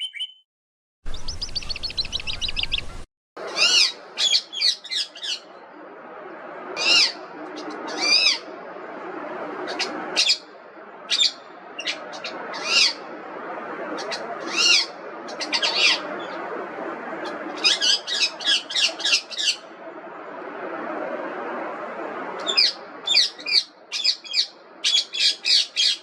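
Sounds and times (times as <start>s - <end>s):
steady background noise: 2.8s - 26.0s.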